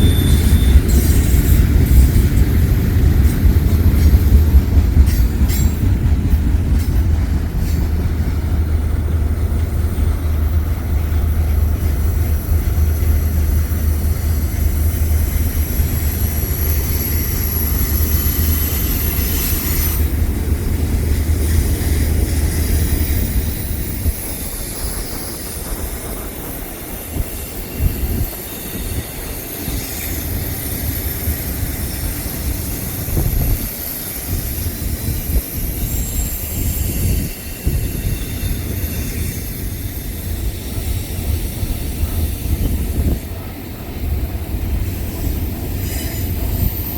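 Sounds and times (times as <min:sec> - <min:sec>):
high-pitched wheel squeal: 0:00.0 - 0:02.1, 0:33.2 - 0:40.4
freight train rumbling on rails: 0:00.0 - 0:46.9.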